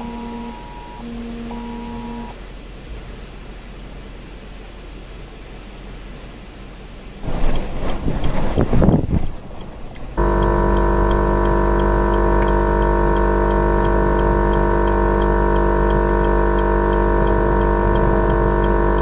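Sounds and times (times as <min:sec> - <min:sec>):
electronic drone of held tones: 0:00.0 - 0:02.4, 0:10.2 - 0:19.0
faint regular ticking: 0:07.2 - 0:19.0.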